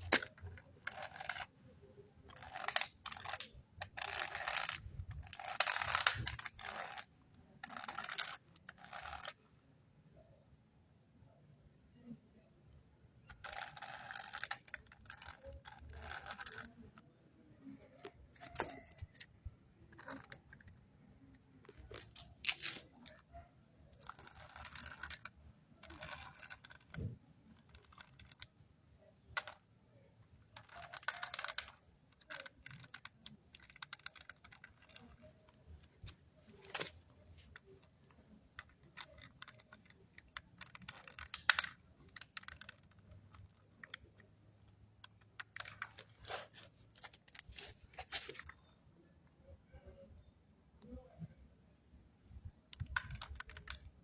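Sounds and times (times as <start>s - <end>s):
handling clicks and rattles: 0.0s - 1.6s, 2.2s - 9.5s, 13.2s - 28.6s, 29.2s - 48.8s
scraping or rustling: 45.8s - 48.6s.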